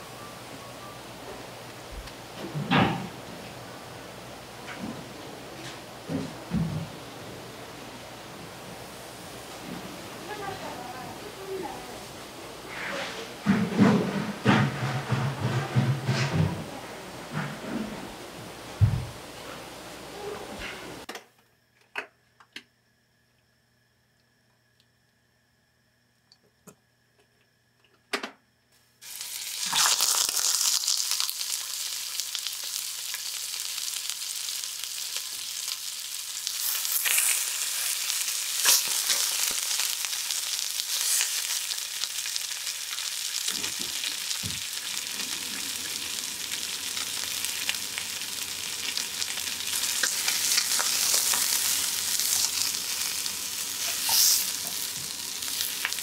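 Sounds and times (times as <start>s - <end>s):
meat sizzling in hot oil: 29.0s - 56.0s.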